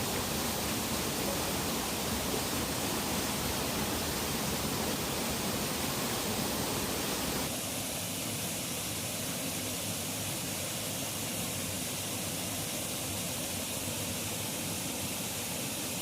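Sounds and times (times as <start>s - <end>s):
river water rushing: 0.0s - 8.0s.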